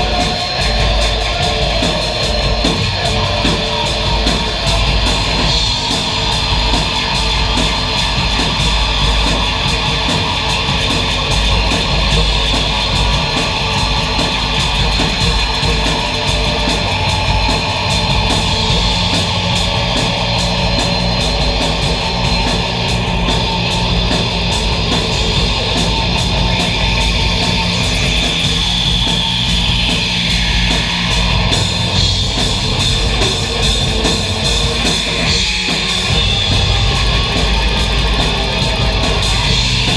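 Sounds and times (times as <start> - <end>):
distorted noise music: 0.0 - 39.9.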